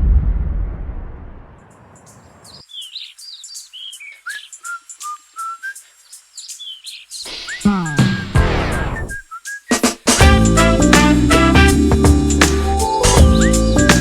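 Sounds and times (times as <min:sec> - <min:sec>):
low rumble: 0:00.0 - 0:02.0
birdsong whistled chirps: 0:01.9 - 0:10.0, 0:12.9 - 0:14.0.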